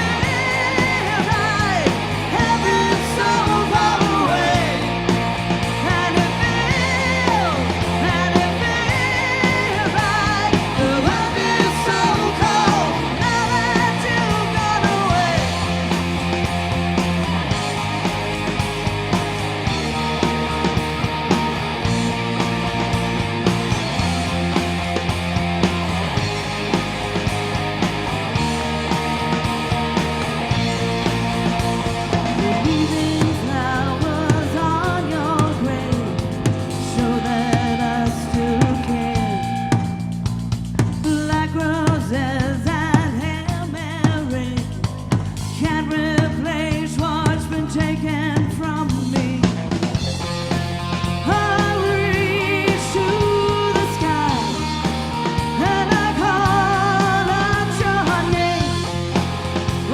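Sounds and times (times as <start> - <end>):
person singing: 0.0 - 15.8, 32.2 - 40.0, 51.1 - 59.9
drum kit: 0.0 - 59.9
electric guitars: 0.0 - 59.9.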